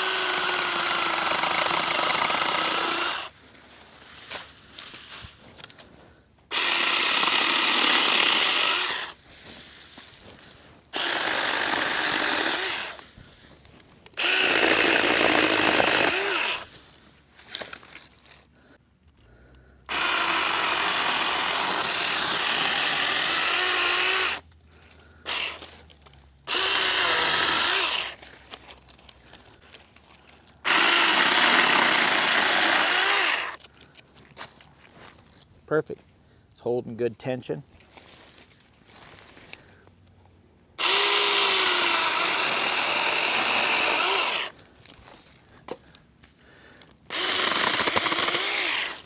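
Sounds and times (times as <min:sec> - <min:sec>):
electric chainsaw cutting wood: 0:00.0 - 0:03.3, 0:06.5 - 0:09.2, 0:10.9 - 0:13.0, 0:14.2 - 0:16.7, 0:19.9 - 0:24.4, 0:25.3 - 0:25.8, 0:26.5 - 0:28.2, 0:30.6 - 0:33.6, 0:40.8 - 0:44.6, 0:47.1 - 0:49.0.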